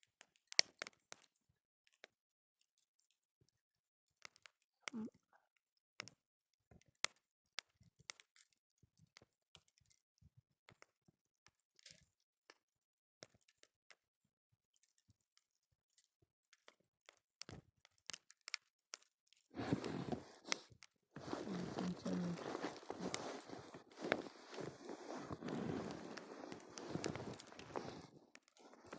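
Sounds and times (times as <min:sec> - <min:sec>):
campfire crackling: 0:19.6 - 0:28.9
rustling and crunching: 0:19.6 - 0:28.9.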